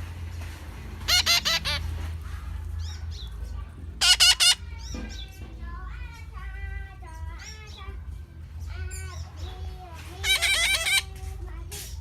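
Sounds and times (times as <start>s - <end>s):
parrot chirping and warbling: 1.0s - 1.9s, 4.0s - 5.4s, 10.2s - 11.2s
parrot squawking: 1.0s - 1.9s, 4.0s - 4.9s, 10.2s - 11.1s.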